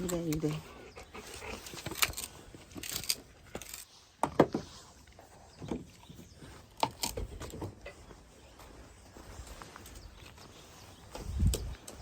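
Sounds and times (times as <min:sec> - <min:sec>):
firewood logs knocking and clattering: 0:01.8 - 0:04.8.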